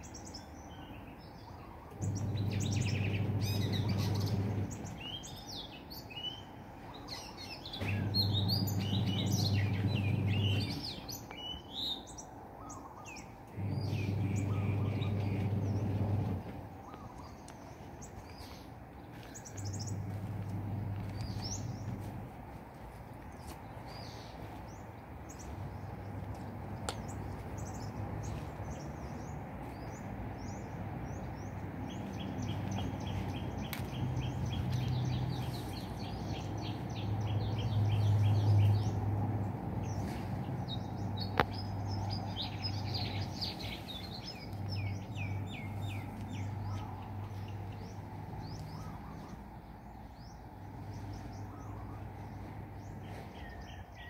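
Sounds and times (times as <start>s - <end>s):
birds chirping and calling: 0.0s - 22.2s, 23.3s - 54.0s
low rumble: 19.6s - 22.5s.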